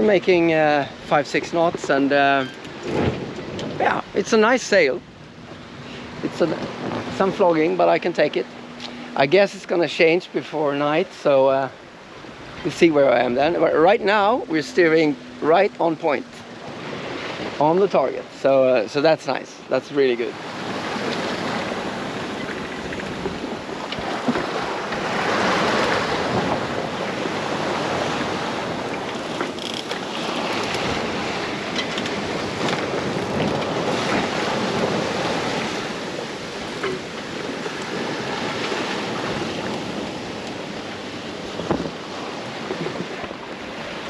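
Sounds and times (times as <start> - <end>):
wind buffeting microphone: 0.0 - 4.3, 4.9 - 8.8, 20.4 - 44.0
water rushing past hull: 0.0 - 44.0.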